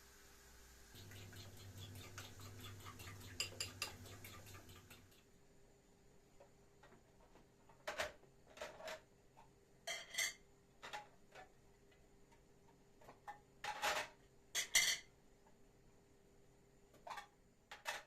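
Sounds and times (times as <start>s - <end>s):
dishes and cutlery clinking: 1.1s - 5.0s, 9.9s - 11.0s, 13.6s - 15.1s.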